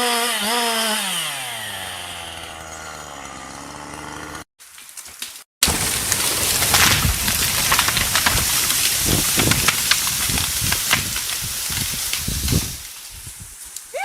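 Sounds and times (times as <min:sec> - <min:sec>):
tree crashing through branches: 0:04.6 - 0:13.8.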